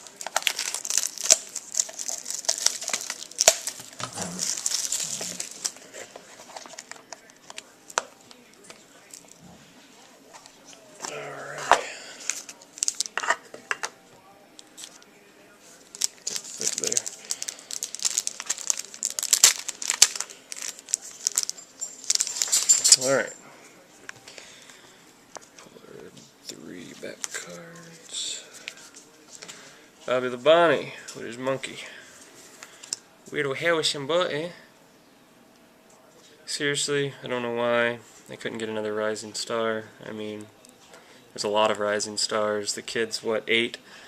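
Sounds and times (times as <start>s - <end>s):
packaging crinkling and tearing: 0.0s - 9.4s, 12.2s - 13.3s, 15.9s - 23.0s.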